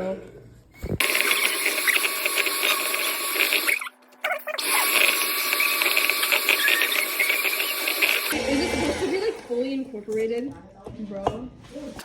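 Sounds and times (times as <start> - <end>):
electric hand mixer whirring: 1.0 - 3.9, 4.6 - 9.8.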